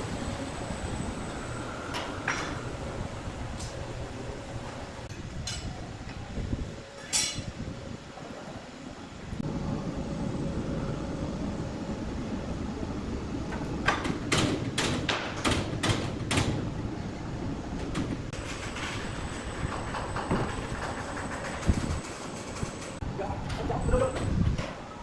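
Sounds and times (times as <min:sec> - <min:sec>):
sharp knocks: 0:13.8 - 0:16.6
sawmill machinery running: 0:17.8 - 0:23.0.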